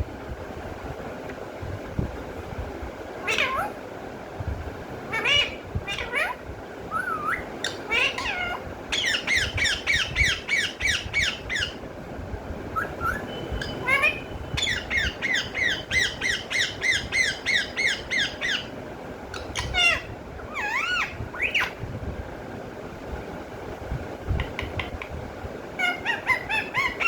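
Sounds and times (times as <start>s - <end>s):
parrot squawking: 3.2s - 3.8s, 5.1s - 11.8s, 12.8s - 18.7s, 19.3s - 21.8s, 25.8s - 27.0s
parrot whistled calls: 5.1s - 11.8s, 12.7s - 18.7s, 19.4s - 21.8s, 25.8s - 27.0s.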